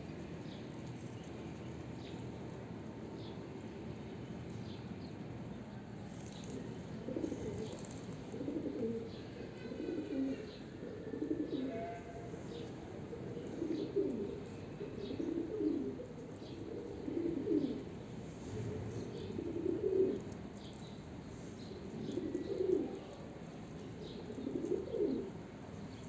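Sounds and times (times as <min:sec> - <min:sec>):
pigeons cooing: 0:06.2 - 0:26.0.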